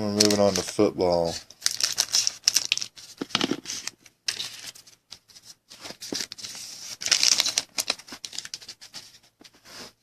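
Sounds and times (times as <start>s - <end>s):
wrapper crinkling and tearing: 0.2s - 0.8s, 1.5s - 4.8s, 6.0s - 8.8s.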